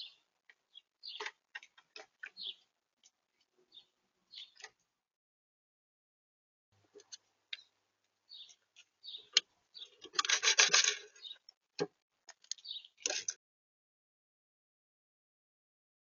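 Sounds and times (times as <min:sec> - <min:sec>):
scraping rustle: 0:10.0 - 0:11.3.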